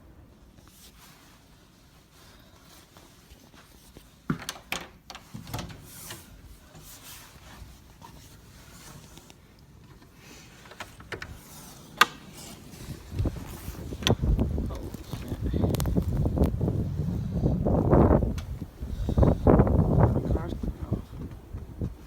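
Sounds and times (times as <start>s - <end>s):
wind buffeting microphone: 12.6s - 22.0s.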